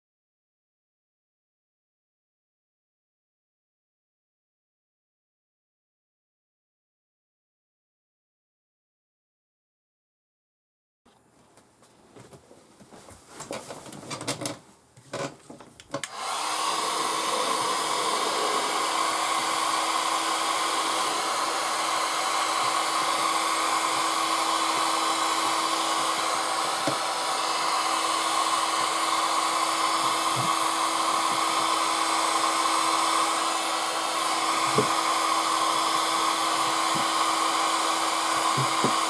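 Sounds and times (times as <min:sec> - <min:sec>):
portable air conditioner blowing: 0:11.3 - 0:39.0.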